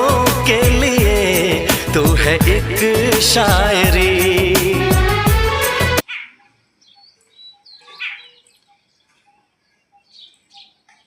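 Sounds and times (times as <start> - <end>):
small bird chirping: 6.1 - 11.0.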